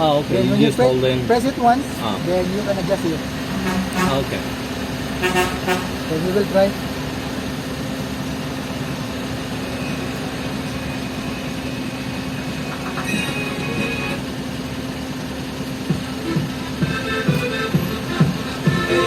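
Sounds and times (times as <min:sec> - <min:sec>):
car engine idling: 0:00.0 - 0:19.0
music from car stereo: 0:12.8 - 0:14.2, 0:15.9 - 0:19.0.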